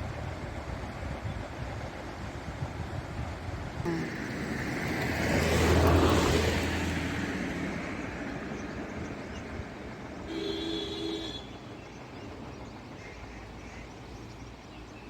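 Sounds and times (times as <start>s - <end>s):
vehicle passing by: 3.9s - 9.8s.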